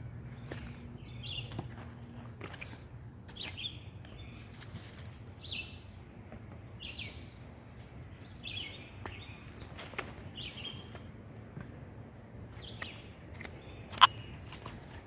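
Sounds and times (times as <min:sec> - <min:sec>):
songbird calling: 0:12.6 - 0:14.6.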